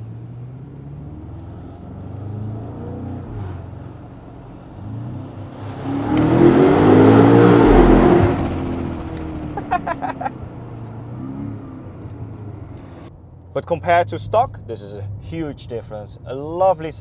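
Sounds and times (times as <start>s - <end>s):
car engine accelerating: 0.4s - 13.1s.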